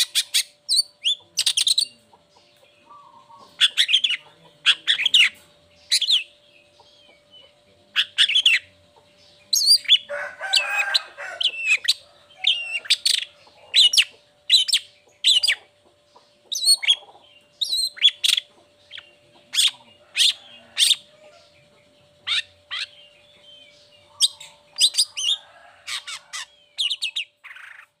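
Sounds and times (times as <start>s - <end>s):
bird rasping call: 24.0s - 28.0s.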